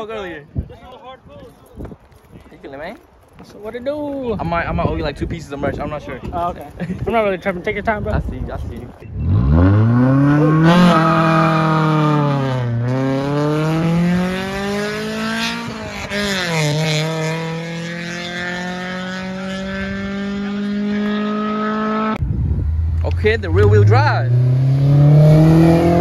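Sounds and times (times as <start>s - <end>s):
car engine revving through gears: 9.1s - 22.2s, 23.6s - 26.0s.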